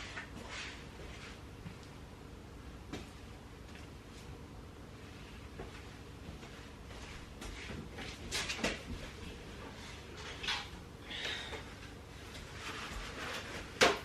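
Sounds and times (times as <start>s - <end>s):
rag rustling and scraping: 12.2s - 14.0s.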